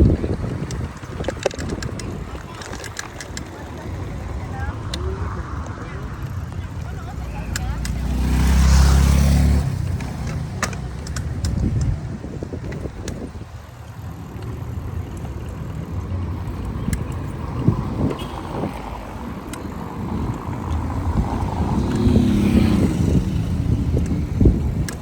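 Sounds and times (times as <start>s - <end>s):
street traffic passing: 0.0s - 25.0s
wind rumble on microphone: 0.0s - 25.0s
sharp clicks: 9.6s - 12.0s, 14.4s - 25.0s
passing vehicle horn-like sound: 18.0s - 18.9s.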